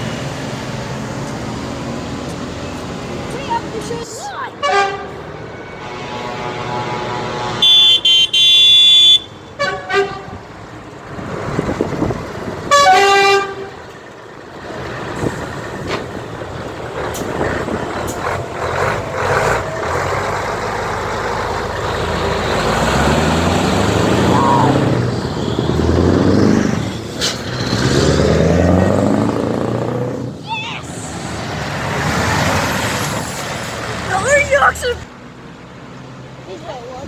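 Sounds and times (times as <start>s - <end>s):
passing vehicle engines: 0.0s - 37.0s
truck horn blasts: 4.6s - 10.6s, 12.6s - 13.9s.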